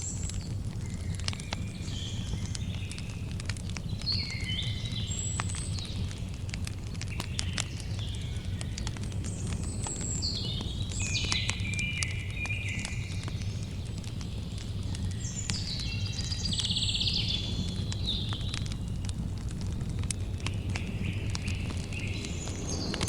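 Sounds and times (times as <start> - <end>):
campfire crackling and popping: 0.0 - 23.0
songbird whistling and trilling: 7.2 - 13.8, 15.0 - 18.6, 20.2 - 23.0
low rumble: 19.1 - 23.0.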